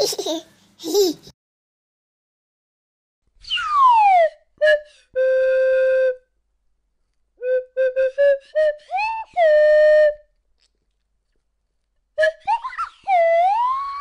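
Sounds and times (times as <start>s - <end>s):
whistle-like sound effect: 3.4s - 6.2s, 12.2s - 14.0s.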